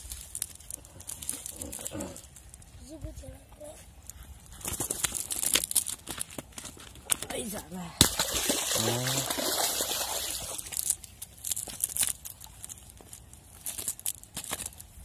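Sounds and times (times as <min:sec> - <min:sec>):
water splashing and sloshing: 0:04.6 - 0:14.2
water dripping: 0:07.0 - 0:13.4.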